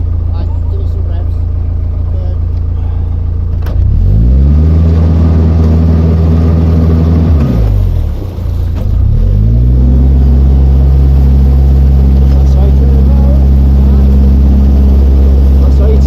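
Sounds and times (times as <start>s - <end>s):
boat engine revving: 0.0s - 16.0s.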